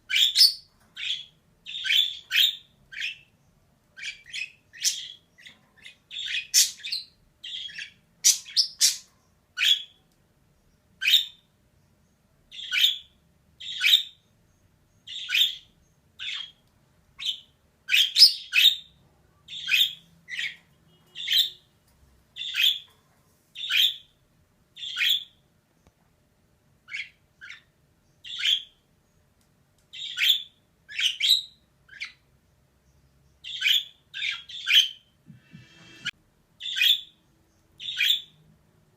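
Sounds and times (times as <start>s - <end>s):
budgerigar chirping: 0.1s - 3.3s, 4.0s - 10.0s, 11.0s - 11.4s, 12.5s - 14.2s, 15.1s - 16.6s, 17.2s - 21.7s, 22.4s - 22.9s, 23.6s - 24.1s, 24.8s - 25.4s, 26.9s - 28.8s, 29.9s - 32.2s, 33.4s - 37.2s, 37.8s - 38.4s.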